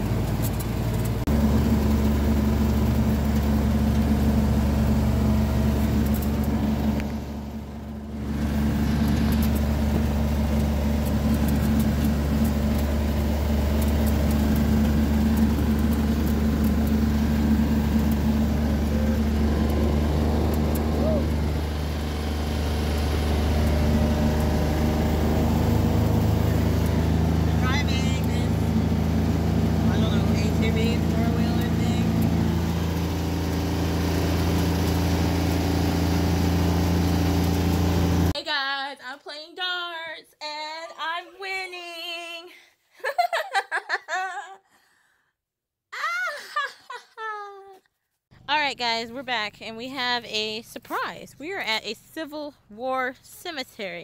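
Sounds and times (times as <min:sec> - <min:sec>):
road noise: 0:00.0 - 0:38.4
vehicle engine drone: 0:00.0 - 0:38.4.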